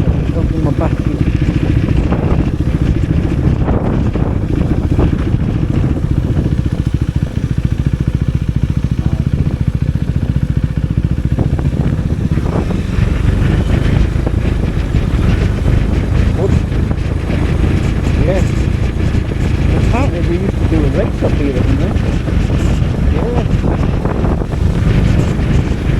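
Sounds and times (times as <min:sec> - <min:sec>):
motorcycle engine running: 0:00.0 - 0:25.9
wind buffeting microphone: 0:00.0 - 0:25.9.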